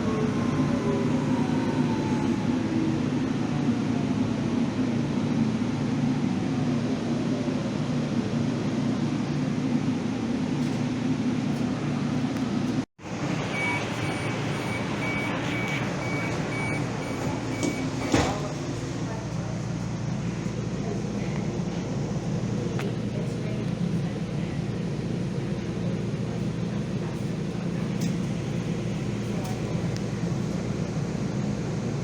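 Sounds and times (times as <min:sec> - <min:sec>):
rail vehicle running rumble: 0:00.0 - 0:32.0
high electronic door warning beep: 0:13.5 - 0:18.5.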